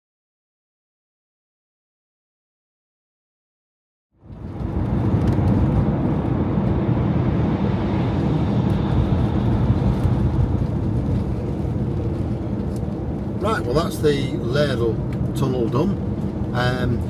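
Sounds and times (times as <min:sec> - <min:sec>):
camper van road and engine noise: 0:04.1 - 0:17.0.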